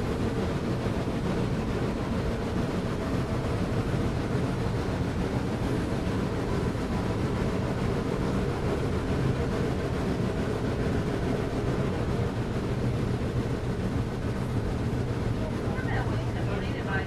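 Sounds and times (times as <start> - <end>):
train running: 0.0 - 17.0.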